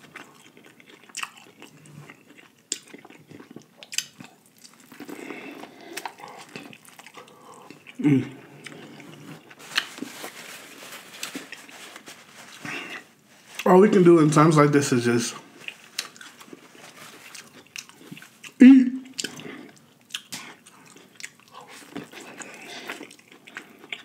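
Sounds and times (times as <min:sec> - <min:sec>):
chewing corn on the cob: 0:00.0 - 0:10.1, 0:15.5 - 0:24.0.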